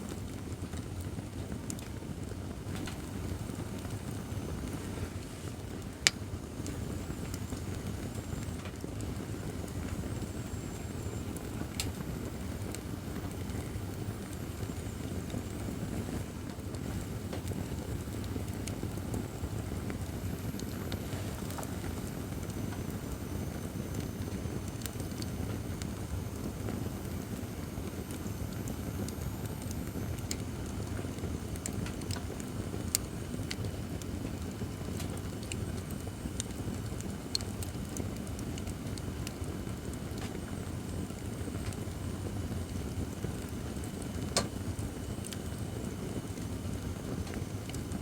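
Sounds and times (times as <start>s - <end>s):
light fire crackling: 0.0s - 48.0s
low rush of flame: 0.0s - 48.0s
sharp pop of burning wood: 44.3s - 44.6s.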